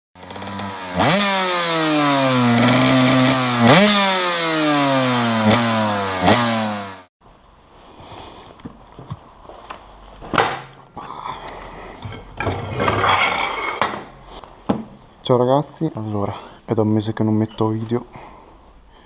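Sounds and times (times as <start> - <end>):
two-stroke engine revving hard: 0.2 - 7.1.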